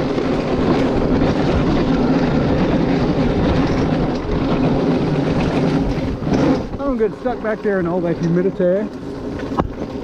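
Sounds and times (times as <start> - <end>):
dirt bike engine running: 0.0 - 10.0.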